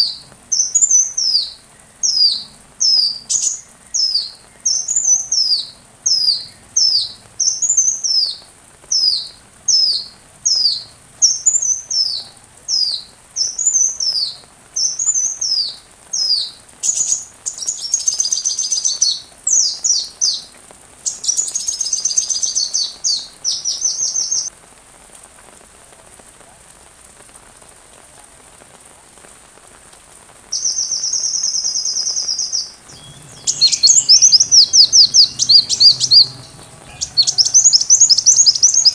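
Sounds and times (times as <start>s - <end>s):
faint rain hiss: 0.0s - 38.9s
bird chirping and trilling: 32.9s - 38.9s.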